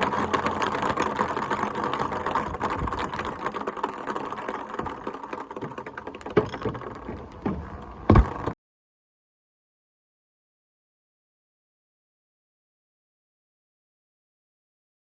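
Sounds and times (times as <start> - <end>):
ping pong balls bouncing on a slide: 0.0 - 8.6.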